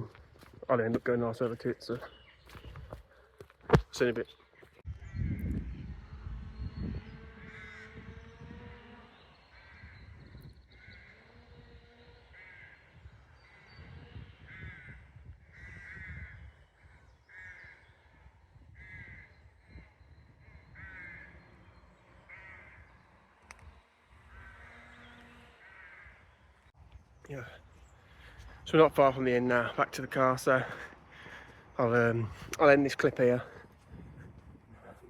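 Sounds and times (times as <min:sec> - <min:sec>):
bird cawing: 0:07.2 - 0:26.7, 0:27.4 - 0:34.0.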